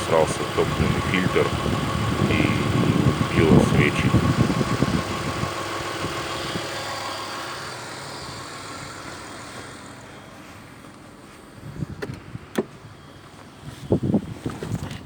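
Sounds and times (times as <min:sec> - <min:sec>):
man talking: 0:00.0 - 0:01.6, 0:02.2 - 0:04.3
car engine running: 0:00.0 - 0:14.3.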